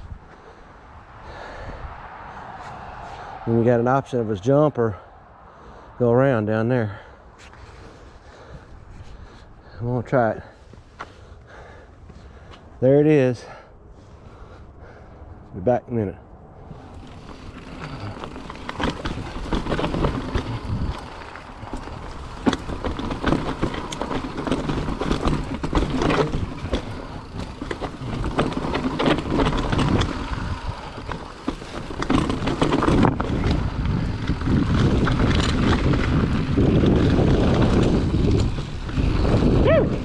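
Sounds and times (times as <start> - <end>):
wind rushing over microphone: 0.0 - 6.1, 16.3 - 40.0
bike tyres crunching over dirt: 16.7 - 40.0
bike rattling and knocking: 16.8 - 40.0.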